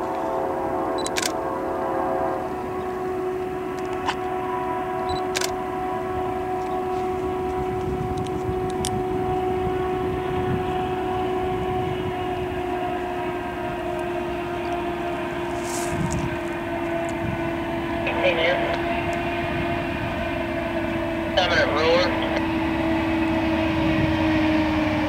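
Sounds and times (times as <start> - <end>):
droning hum: 0.0 - 25.0
train wheels rumbling on rail: 6.4 - 25.0.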